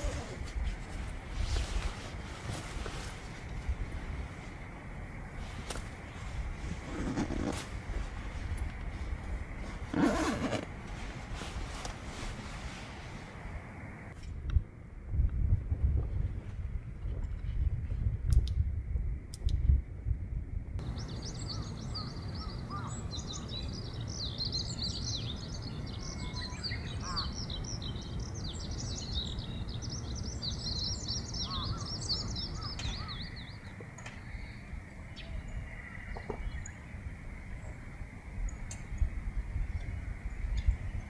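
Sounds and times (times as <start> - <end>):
birds chirping and twittering: 20.8 - 41.0.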